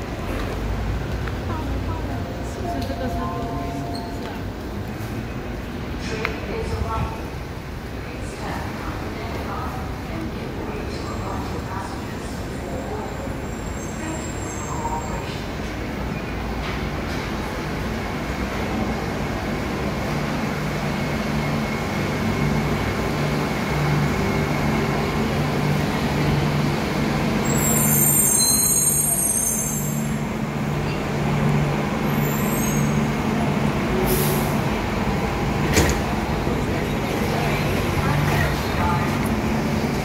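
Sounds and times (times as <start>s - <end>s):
train hum: 0.0s - 40.0s
high squeal: 27.4s - 30.1s, 32.1s - 33.0s
train doors clicking open: 35.5s - 36.4s.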